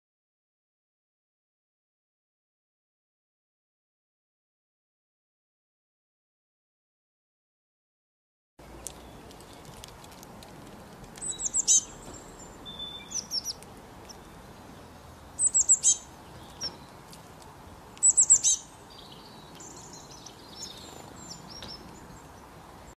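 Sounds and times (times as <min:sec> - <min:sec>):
small birds chirping: 0:08.6 - 0:22.9.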